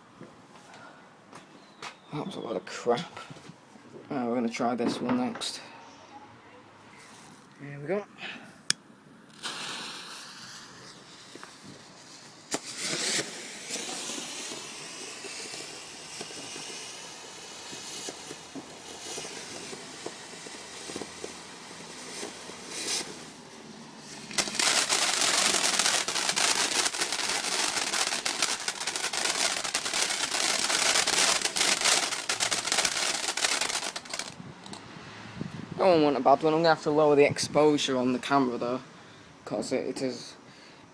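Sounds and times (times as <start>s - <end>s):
firework sharp pops: 8.7s - 23.5s, 24.1s - 34.8s
firework crackling snaps: 8.7s - 34.8s
firework hissing: 9.3s - 34.4s.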